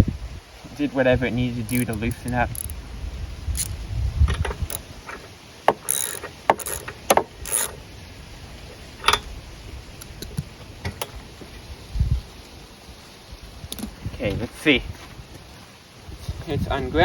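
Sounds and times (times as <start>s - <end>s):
metallic scrapes of tools: 1.6s - 2.7s, 4.7s - 7.8s
hand tools clicking: 1.6s - 2.8s, 3.6s - 3.8s, 4.4s - 7.8s.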